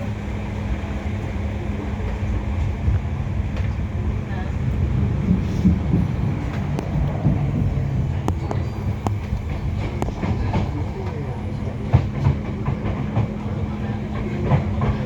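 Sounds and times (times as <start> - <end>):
train rumbling on rails: 0.0 - 15.0
sharp rail clicks: 5.2 - 15.0.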